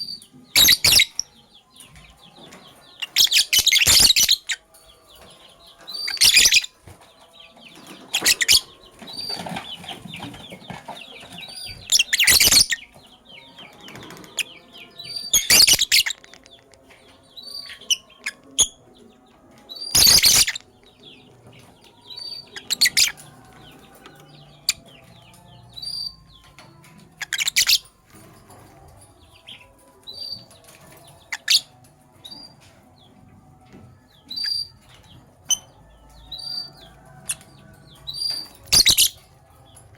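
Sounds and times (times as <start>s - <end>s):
lovebirds shrieking: 0.0s - 1.4s, 2.4s - 4.8s, 5.8s - 6.9s, 7.8s - 13.0s, 13.6s - 28.6s, 29.4s - 32.6s, 34.2s - 39.4s
high bird chirps and twitters: 0.0s - 4.6s, 5.8s - 6.8s, 7.7s - 16.8s, 19.7s - 28.6s, 29.3s - 32.6s, 34.3s - 39.3s.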